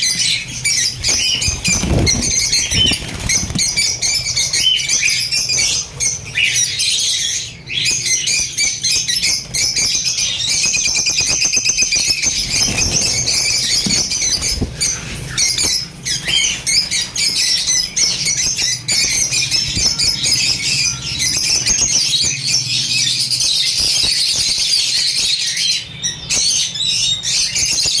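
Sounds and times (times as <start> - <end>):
caged birds chattering and squawking: 0.0 - 28.0.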